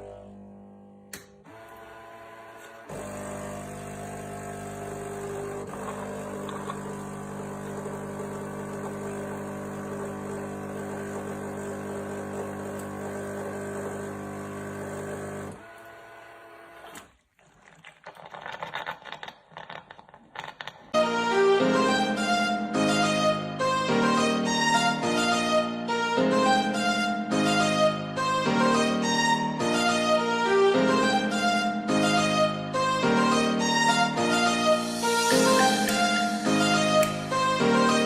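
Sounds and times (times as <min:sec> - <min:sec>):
coffee machine humming: 0:00.0 - 0:17.8
coffee machine sputtering: 0:01.5 - 0:21.0.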